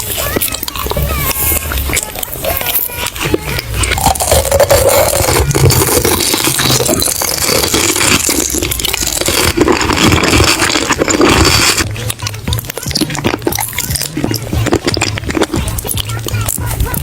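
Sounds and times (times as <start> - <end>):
chewing and crunching food: 0.0 - 17.0.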